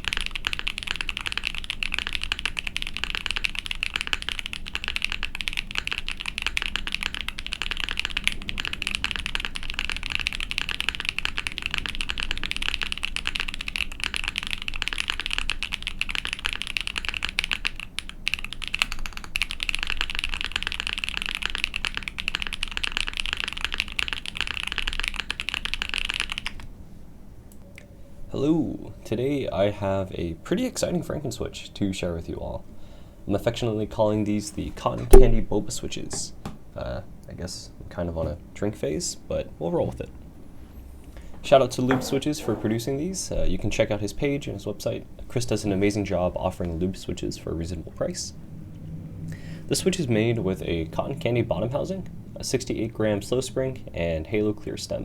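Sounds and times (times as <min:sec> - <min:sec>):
mechanical keyboard typing: 0:00.0 - 0:26.7.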